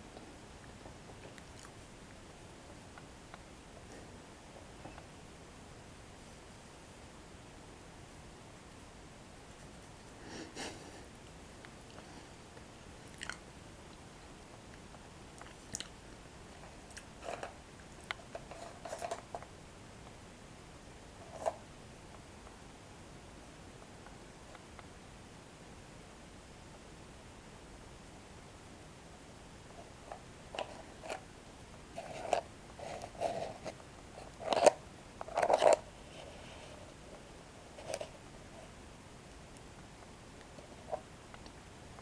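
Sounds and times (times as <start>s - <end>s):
chewing crunchy breadsticks: 13.0s - 13.5s, 14.8s - 16.0s.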